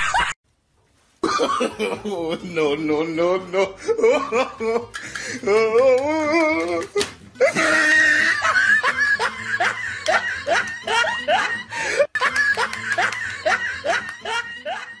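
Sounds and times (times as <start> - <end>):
squeaky laughter: 7.4 - 15.0.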